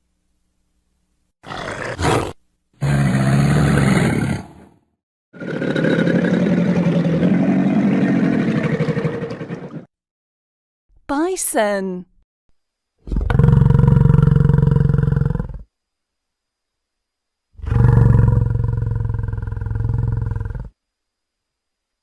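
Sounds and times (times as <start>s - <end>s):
crocodile growling: 1.4s - 4.8s, 5.4s - 9.9s, 13.1s - 15.7s, 17.6s - 20.7s.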